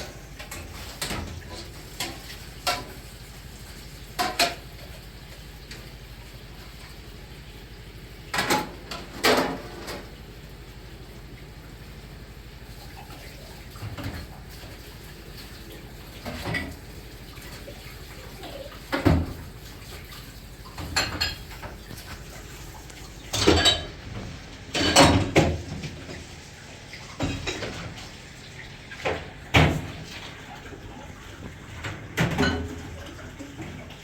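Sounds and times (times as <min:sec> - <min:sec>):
water running: 0:00.0 - 0:34.0
kitchenware clattering: 0:04.1 - 0:04.7, 0:20.7 - 0:26.2, 0:27.2 - 0:28.0, 0:31.8 - 0:33.2.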